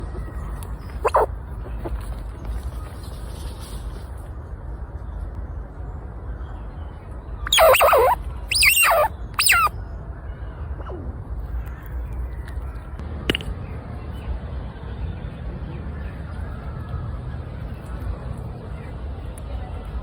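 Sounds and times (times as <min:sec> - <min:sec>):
bird calling with wavering pitch: 0:01.0 - 0:01.3, 0:07.5 - 0:09.7.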